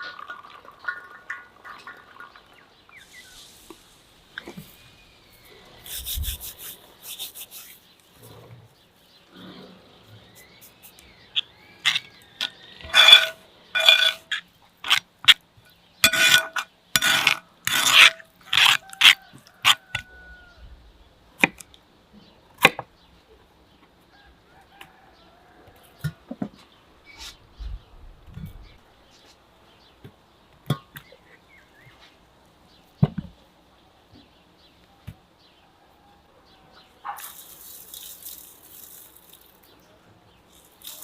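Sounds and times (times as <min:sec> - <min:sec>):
metallic scraping strokes: 0:12.8 - 0:15.0, 0:16.0 - 0:19.8.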